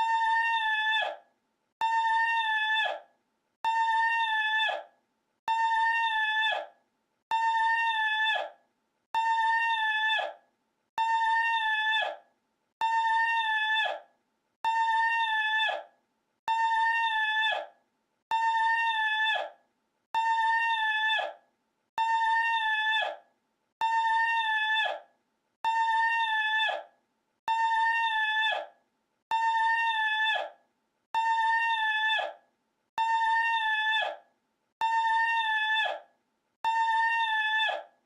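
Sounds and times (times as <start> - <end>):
man's shrill vocal cry: 27.5 - 28.7.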